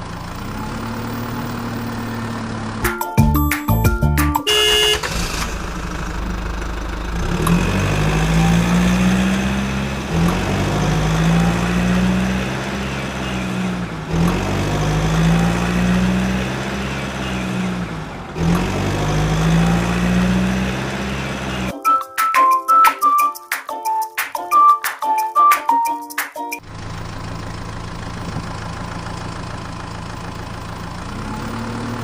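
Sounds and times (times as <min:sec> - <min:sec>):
vehicle engine revving: 0:00.0 - 0:02.8, 0:04.5 - 0:21.7, 0:26.6 - 0:32.0.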